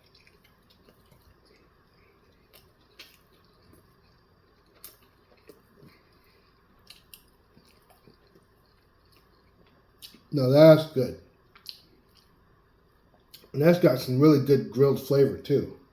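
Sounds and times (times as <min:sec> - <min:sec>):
person chewing wetly: 0:00.0 - 0:10.3, 0:11.3 - 0:12.4, 0:13.0 - 0:13.6
small clicks and squishes: 0:00.0 - 0:10.3.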